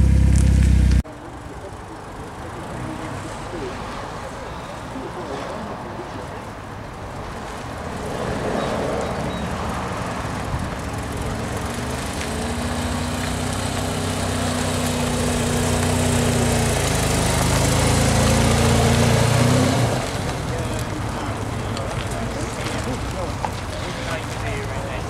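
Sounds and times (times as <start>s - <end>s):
car engine at low revs: 0.0s - 1.0s, 9.6s - 25.0s.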